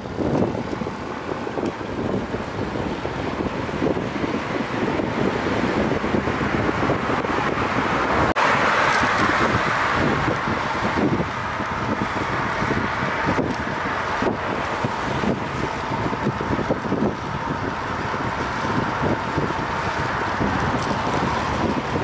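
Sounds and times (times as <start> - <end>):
road noise: 0.0 - 22.0
traffic: 0.0 - 22.0
wind on microphone: 0.0 - 22.0.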